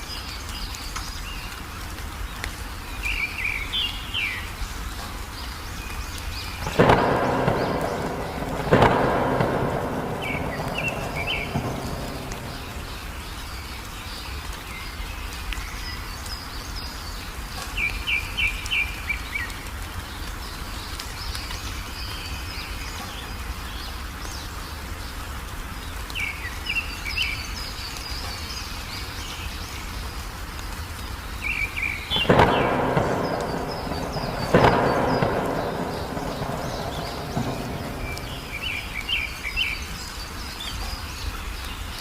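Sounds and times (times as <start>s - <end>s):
songbirds chirping: 0.0s - 42.0s
steady rain: 0.0s - 42.0s
thunder rumble: 6.6s - 13.8s, 32.1s - 40.0s.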